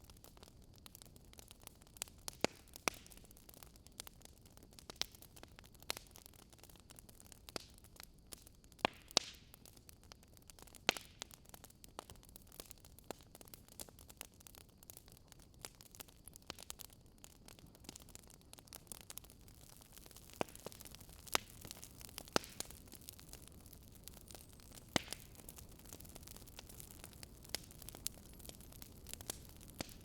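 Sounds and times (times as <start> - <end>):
faint steady hiss: 0.0 - 30.0
wood fire crackling: 0.0 - 30.0.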